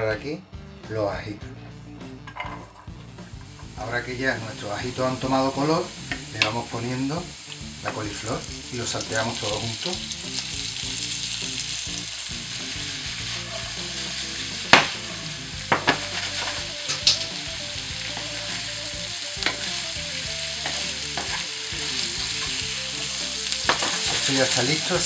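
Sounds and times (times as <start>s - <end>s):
vegetables sizzling in oil: 2.8s - 25.0s
spatula knocking in pan: 15.7s - 16.1s, 23.7s - 24.2s.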